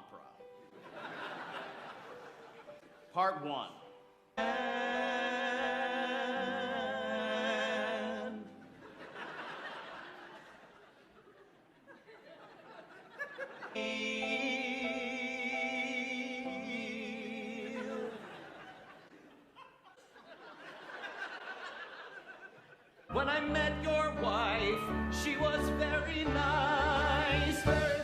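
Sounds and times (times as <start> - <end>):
operatic voices holding a chord: 4.4 - 8.8, 13.7 - 18.6.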